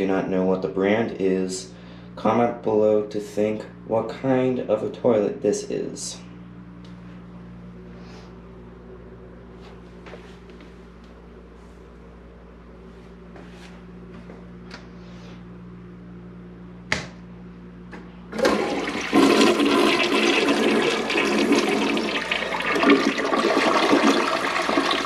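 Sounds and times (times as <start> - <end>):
toilet water rushing: 18.3 - 25.0.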